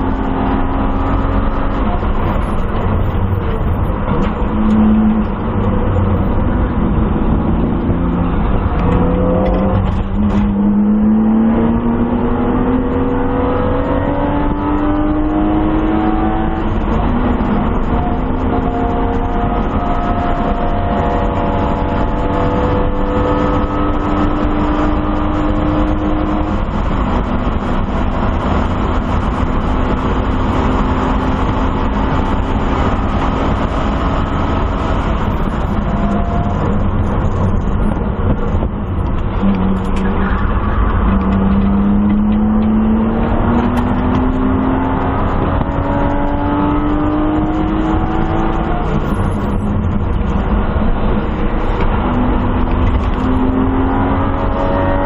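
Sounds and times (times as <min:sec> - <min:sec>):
car engine revving from cabin: 0:00.0 - 0:55.0
road noise: 0:00.0 - 0:55.0.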